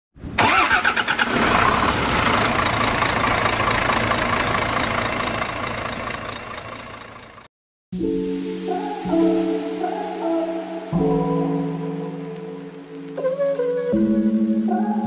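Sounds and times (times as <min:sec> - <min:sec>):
heavy truck engine rumbling: 0:00.4 - 0:07.5.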